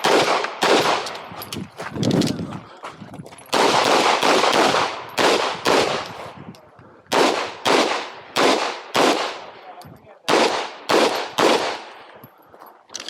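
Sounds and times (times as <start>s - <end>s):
pistol shots with echo: 0.0s - 1.3s, 3.5s - 6.2s, 7.1s - 12.2s.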